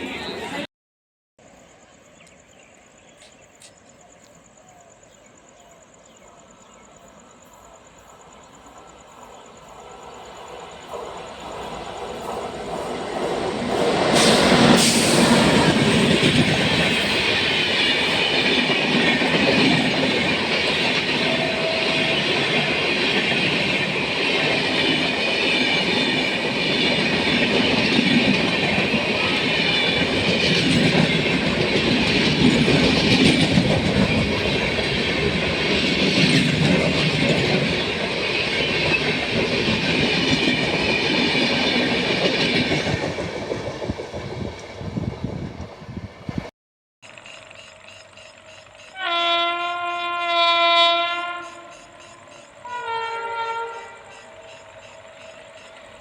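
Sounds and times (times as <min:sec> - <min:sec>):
passenger train passing: 0:00.0 - 0:00.7, 0:05.4 - 0:46.5, 0:48.0 - 0:56.0
faint crickets: 0:01.4 - 0:15.8, 0:47.1 - 0:49.0, 0:51.4 - 0:56.0.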